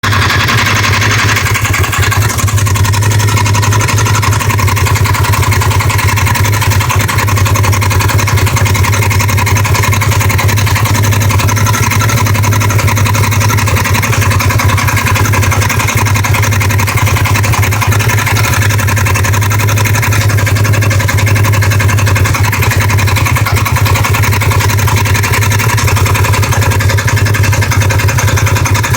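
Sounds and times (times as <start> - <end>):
engine idling: 0.0 - 28.9
engine knocking: 0.0 - 28.9.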